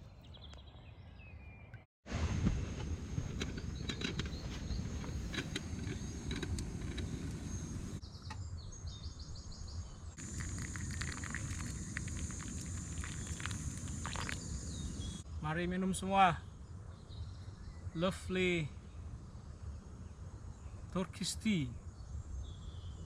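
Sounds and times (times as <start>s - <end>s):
low outdoor rush: 2.1s - 8.0s, 10.2s - 16.4s
small birds chirping: 3.2s - 23.0s.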